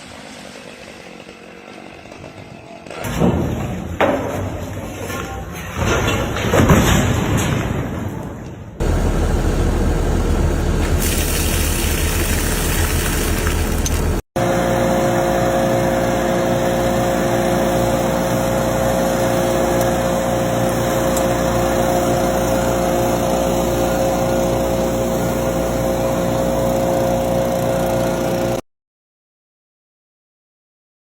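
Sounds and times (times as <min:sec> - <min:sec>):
small engine running steadily: 0:08.8 - 0:28.6.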